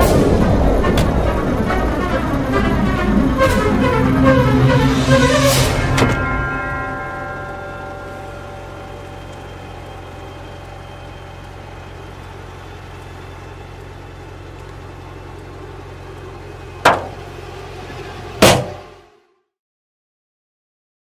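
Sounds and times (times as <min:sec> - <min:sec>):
sharp bangs: 0:00.0 - 0:11.0, 0:16.8 - 0:17.4, 0:18.3 - 0:19.0
car engine idling: 0:00.0 - 0:19.2.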